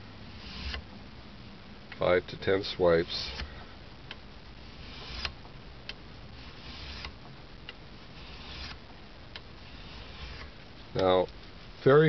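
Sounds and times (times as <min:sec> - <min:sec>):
file rasping on metal blade: 0:04.6 - 0:05.3, 0:06.4 - 0:07.1, 0:08.1 - 0:08.8, 0:09.6 - 0:10.5.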